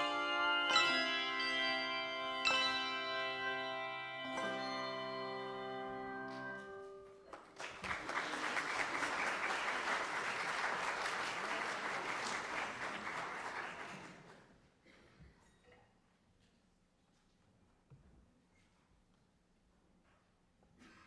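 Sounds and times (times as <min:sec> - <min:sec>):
sustained music chord: 0:00.0 - 0:07.1
audience applause: 0:07.3 - 0:14.5.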